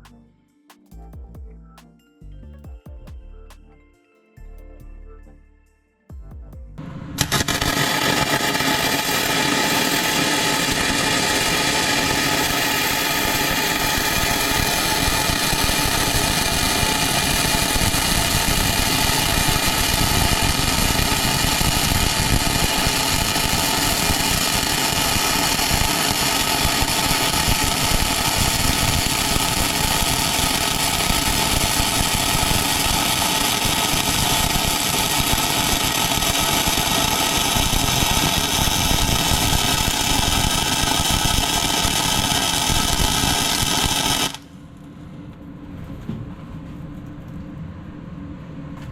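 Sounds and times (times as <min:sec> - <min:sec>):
power tool motor running: 0:07.2 - 0:44.5.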